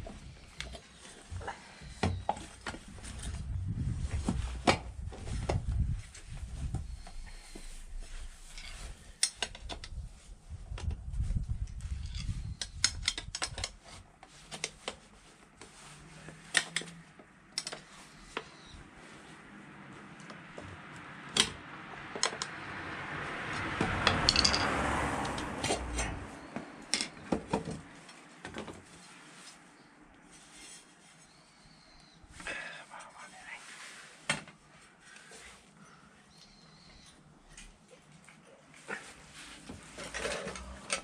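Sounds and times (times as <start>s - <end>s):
metal tools clinking: 24.2s - 24.7s.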